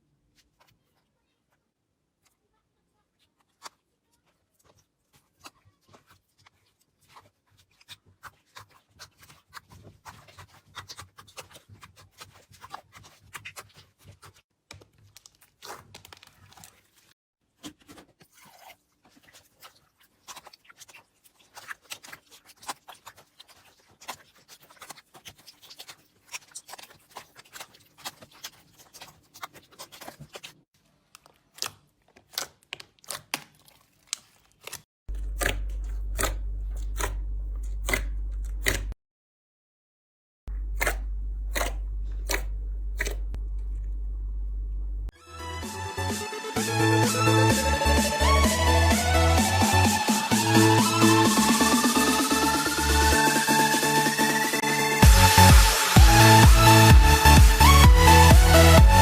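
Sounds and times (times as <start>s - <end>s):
slime crackling and popping: 19.1s - 30.6s, 31.2s - 37.2s.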